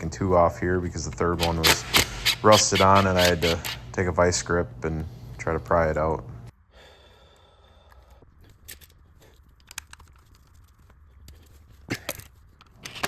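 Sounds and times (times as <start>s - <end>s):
faint steady hum: 0.0s - 12.7s
hand tools and metal parts clicking: 1.3s - 3.9s.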